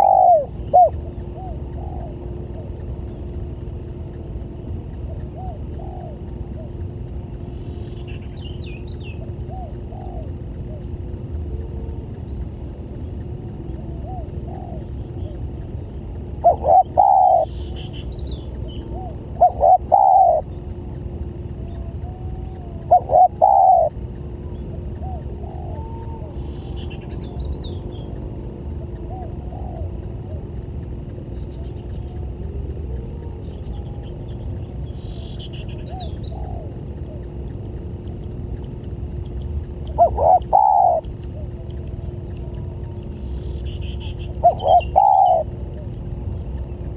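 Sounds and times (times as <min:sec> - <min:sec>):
distant dove cooing: 0:00.0 - 0:46.9
dove cooing: 0:00.0 - 0:46.9
low rumble: 0:00.0 - 0:46.9
high bird chirps: 0:16.4 - 0:20.7, 0:38.6 - 0:45.5.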